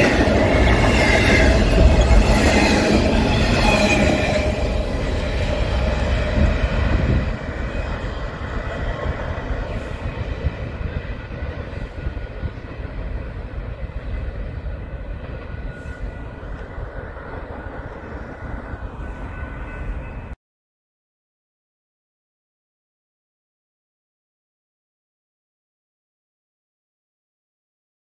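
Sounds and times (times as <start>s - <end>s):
freight train rumbling past: 0.0s - 20.4s.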